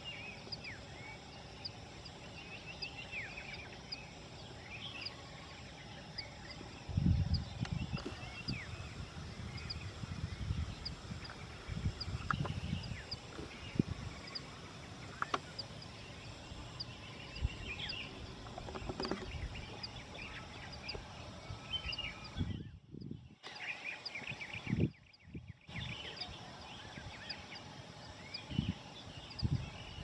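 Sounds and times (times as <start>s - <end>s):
birds chirping and twittering: 0.0s - 30.0s
wind gusting on microphone: 6.6s - 23.4s, 24.3s - 27.2s, 28.3s - 30.0s.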